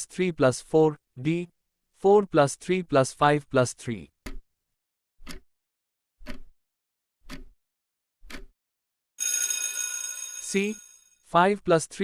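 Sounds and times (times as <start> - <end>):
clock-like timer ticks: 5.2 - 5.4, 6.2 - 6.5, 7.2 - 7.6, 8.2 - 8.5
bright bell chime: 9.2 - 11.0.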